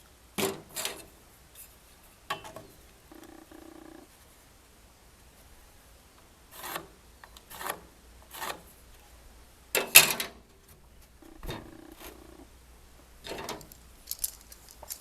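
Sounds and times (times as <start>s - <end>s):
hand tool working wood: 6.6s - 8.7s.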